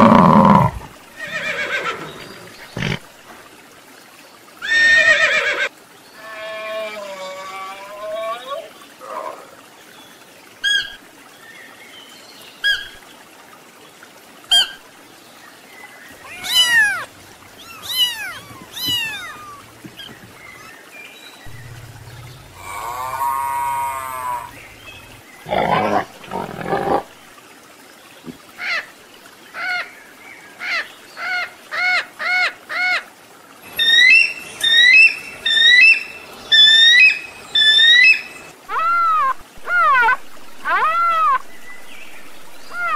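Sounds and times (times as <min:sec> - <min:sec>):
long animal call: 0:00.0 - 0:02.2, 0:16.2 - 0:20.1, 0:21.5 - 0:27.1
rising and falling animal calls: 0:00.0 - 0:03.0, 0:16.2 - 0:20.7, 0:21.5 - 0:27.2, 0:33.7 - 0:41.5, 0:42.7 - 0:42.9
high animal chirps: 0:16.3 - 0:20.2.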